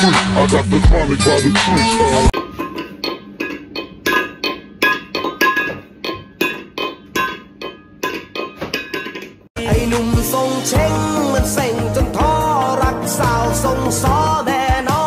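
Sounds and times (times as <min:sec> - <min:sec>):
metal bowl clinking: 0:02.4 - 0:09.5.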